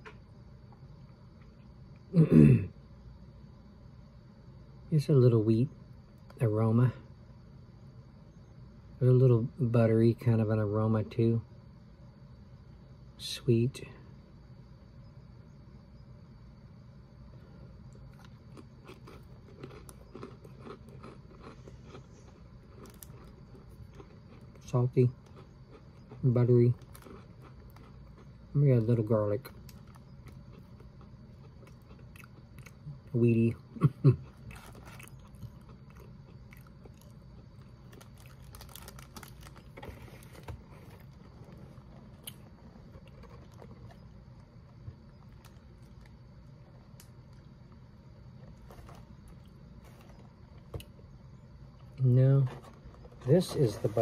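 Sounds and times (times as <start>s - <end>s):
low steady hum: 0.0s - 54.0s
person chewing crunchy cracker: 17.7s - 28.5s, 29.4s - 53.2s.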